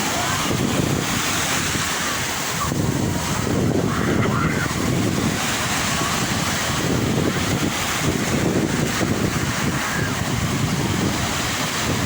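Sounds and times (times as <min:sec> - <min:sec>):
sea waves washing: 0:00.0 - 0:12.0
wind buffeting microphone: 0:00.0 - 0:12.0.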